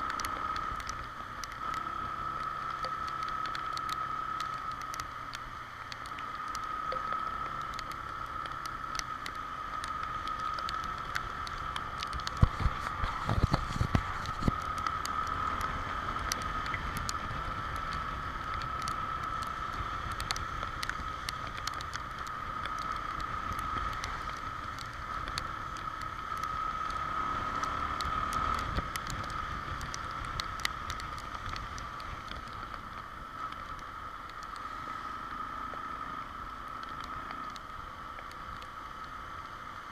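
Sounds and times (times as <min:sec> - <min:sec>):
motorcycle engine: 0:00.0 - 0:39.9
raindrops ticking: 0:00.0 - 0:39.9
wind noise: 0:12.0 - 0:14.7.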